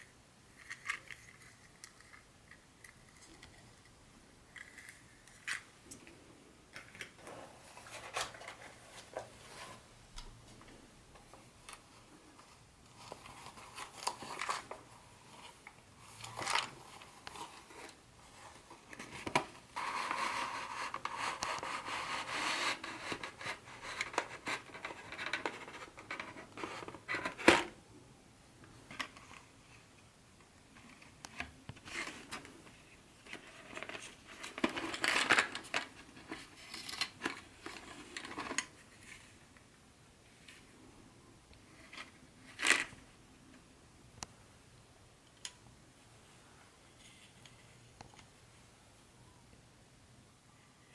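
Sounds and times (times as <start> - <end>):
packaging rustling and scraping: 7.1 - 9.9, 12.4 - 27.7, 31.8 - 39.3.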